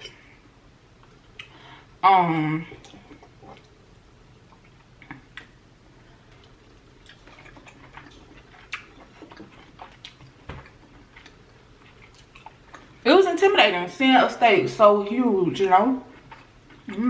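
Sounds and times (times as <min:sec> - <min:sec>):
soft eating clicks and smacks: 0:01.0 - 0:01.7, 0:02.7 - 0:03.8, 0:04.5 - 0:05.6, 0:06.2 - 0:13.0, 0:16.1 - 0:17.0.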